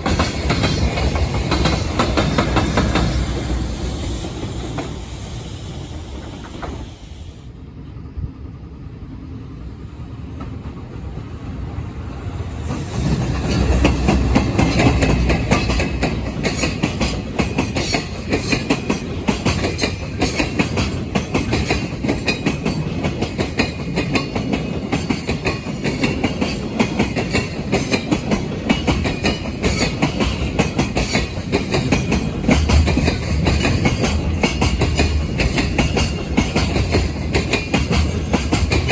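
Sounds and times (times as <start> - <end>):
wagon wheels clicking over rail joints: 0.0 - 3.6, 12.9 - 38.9
freight train passing: 0.0 - 38.9.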